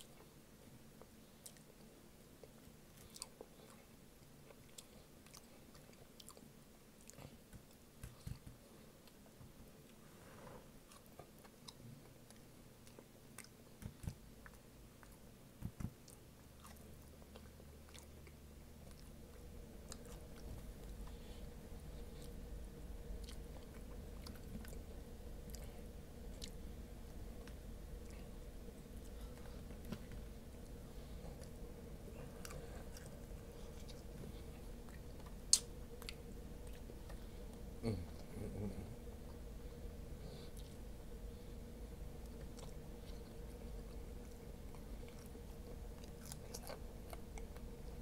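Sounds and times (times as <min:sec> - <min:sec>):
low steady hum: 0:00.0 - 0:48.0
chewing and biting fries: 0:02.4 - 0:09.2, 0:10.9 - 0:21.1, 0:42.1 - 0:48.0
wet mouth clicks: 0:34.9 - 0:36.2.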